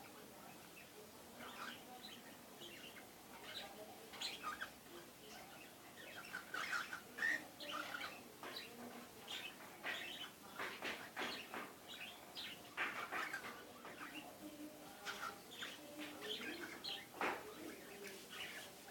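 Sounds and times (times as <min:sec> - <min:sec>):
cockatiels chirping: 0:01.4 - 0:04.7, 0:05.3 - 0:14.2.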